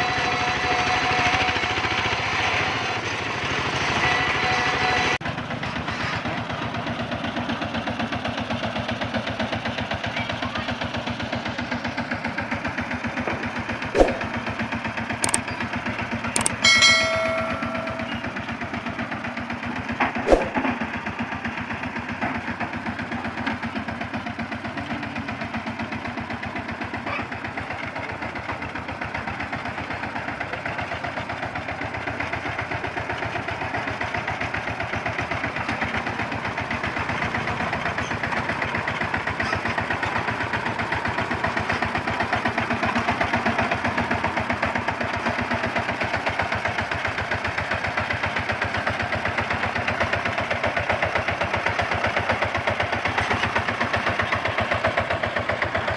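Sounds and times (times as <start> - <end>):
diesel engine chugging: 0.0 - 17.1, 20.7 - 55.9.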